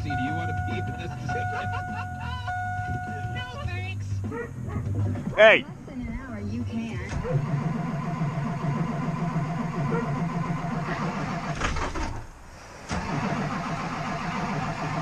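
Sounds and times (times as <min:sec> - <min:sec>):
engine cranking by starter motor: 0:06.8 - 0:15.0.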